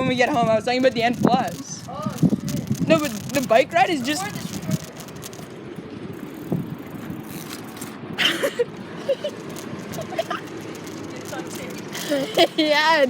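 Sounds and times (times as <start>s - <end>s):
bicycle rolling: 0.0s - 13.0s.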